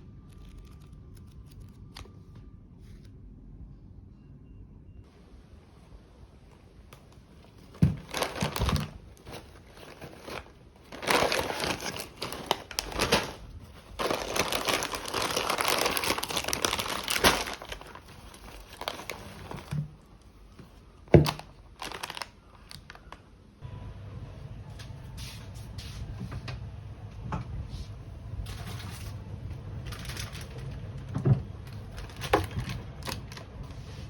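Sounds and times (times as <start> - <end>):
plastic packaging crinkling: 0.2 - 2.2, 7.4 - 23.2, 28.5 - 30.9, 31.6 - 33.9.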